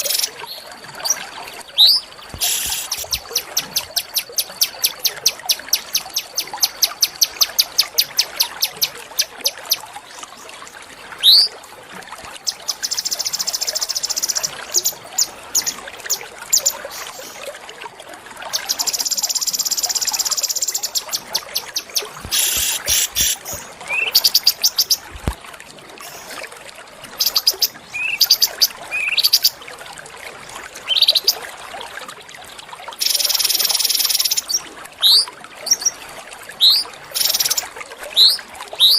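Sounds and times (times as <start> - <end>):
songbird singing: 1.8 - 9.8, 18.6 - 25.1, 27.2 - 29.5.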